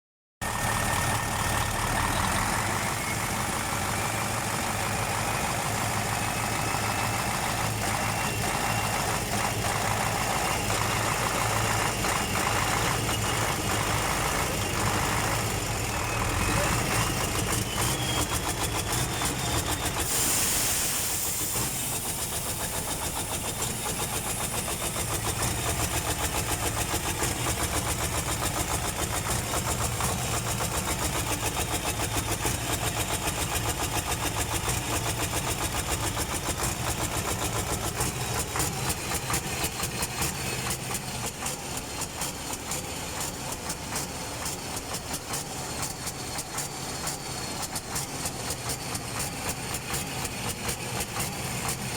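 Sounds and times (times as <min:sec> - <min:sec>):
truck diesel engine pulsing: 0:00.4 - 0:51.9
brief hiss: 0:20.0 - 0:23.0.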